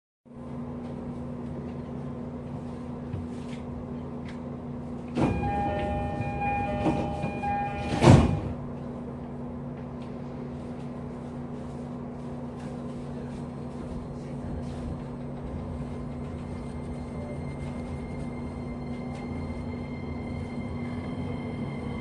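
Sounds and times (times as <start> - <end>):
train equipment humming: 0.4 - 22.0
door-closing chime: 5.2 - 8.6
sliding doors thudding shut: 5.2 - 8.6.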